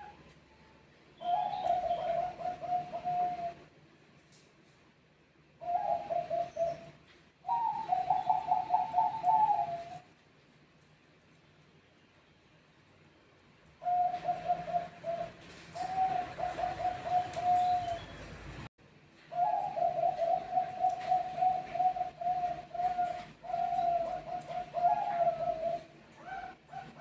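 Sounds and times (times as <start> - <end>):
doves cooing: 1.2 - 3.7, 5.6 - 10.1, 13.8 - 18.5, 19.3 - 27.0.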